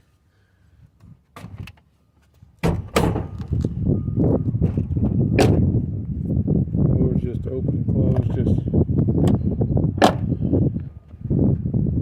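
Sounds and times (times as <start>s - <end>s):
car door handling rattles: 2.6s - 3.7s, 4.6s - 5.8s, 10.0s - 10.3s
car door latch click: 2.6s - 3.7s, 5.4s - 5.7s, 10.0s - 10.2s.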